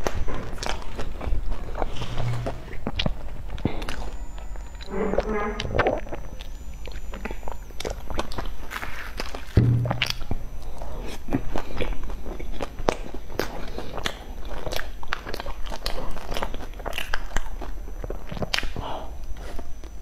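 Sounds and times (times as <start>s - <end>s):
biting and chewing crunches: 0.0s - 4.9s, 5.8s - 20.0s.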